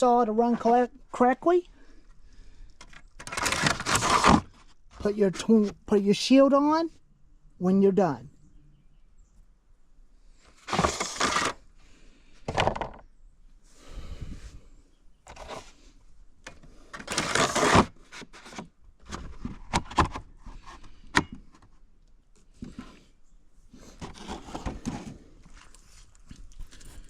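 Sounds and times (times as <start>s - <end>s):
chainsaw handling scrapes and rustles: 2.8s - 5.7s, 10.5s - 11.7s, 15.3s - 15.9s, 16.8s - 19.7s, 23.7s - 27.0s.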